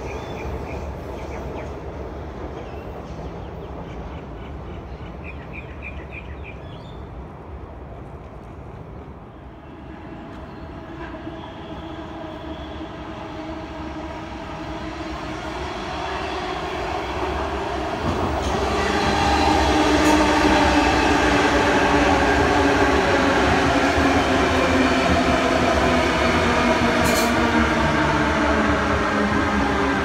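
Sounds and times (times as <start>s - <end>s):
electric train passing: 7.0s - 30.0s.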